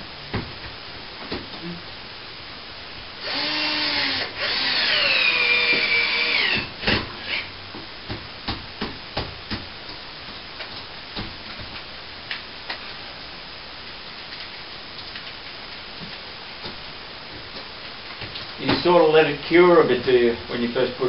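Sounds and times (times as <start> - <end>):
power drill driving screw: 3.2 - 7.5.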